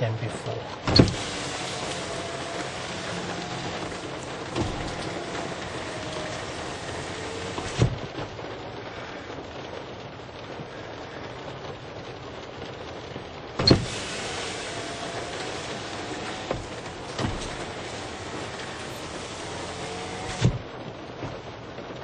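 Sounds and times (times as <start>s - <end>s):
rain on a car: 0.0s - 22.0s
power window motor whining: 0.7s - 8.2s, 13.6s - 20.8s.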